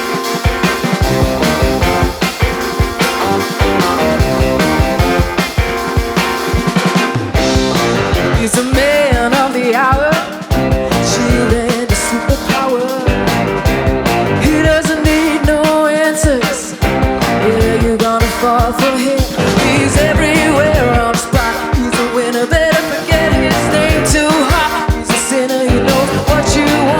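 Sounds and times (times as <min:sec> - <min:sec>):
live rock band playing: 0:00.0 - 0:26.9
wavering lead melody: 0:00.1 - 0:08.4.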